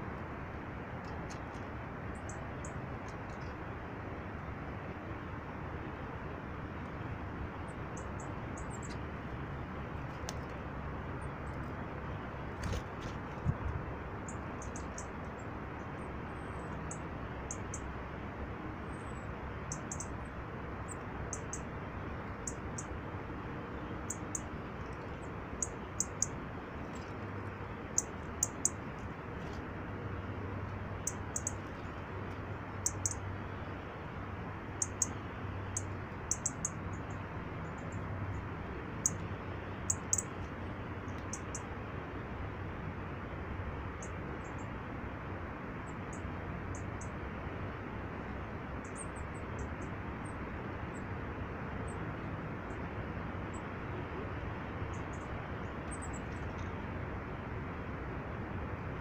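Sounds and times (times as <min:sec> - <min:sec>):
steady background hiss: 0:00.0 - 0:59.0
small birds calling: 0:14.2 - 0:17.9, 0:23.8 - 0:26.4, 0:27.0 - 0:28.9, 0:31.0 - 0:32.0, 0:32.7 - 0:33.4, 0:34.7 - 0:38.4, 0:39.0 - 0:40.4.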